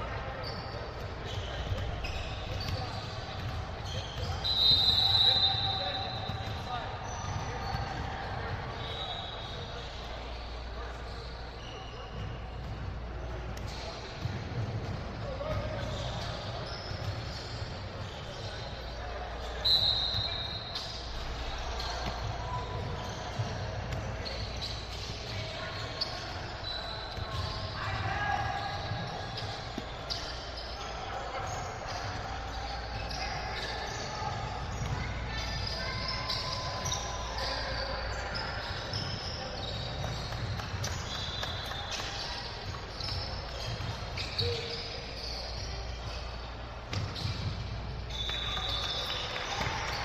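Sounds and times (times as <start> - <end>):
crowd voices: 0.0 - 50.0
murmur of spectators: 0.0 - 50.0
sneaker squeaks: 0.0 - 50.0
basketball bouncing on court: 0.4 - 8.9, 12.1 - 18.6, 20.1 - 30.6, 33.0 - 37.1, 38.3 - 46.2, 46.9 - 50.0
basketball bouncing on gym floor: 1.0 - 4.5, 46.9 - 50.0.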